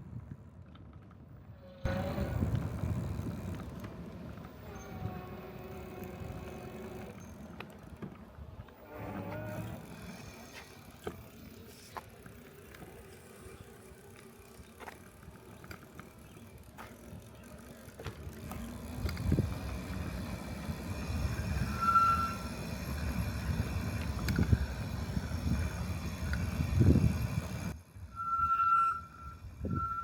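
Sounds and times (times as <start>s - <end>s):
bike clicks and rattles: 0.0s - 27.8s
wind buffeting microphone: 1.9s - 7.1s, 18.4s - 21.8s, 22.4s - 27.8s.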